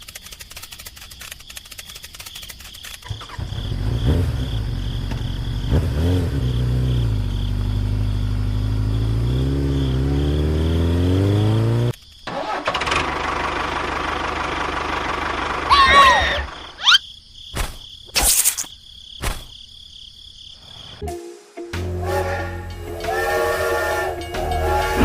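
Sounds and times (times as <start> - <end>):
engine starting and revving: 3.0 - 16.7.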